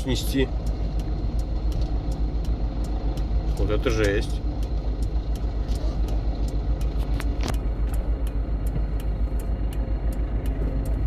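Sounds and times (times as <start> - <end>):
engine and road rumble: 0.0 - 11.0.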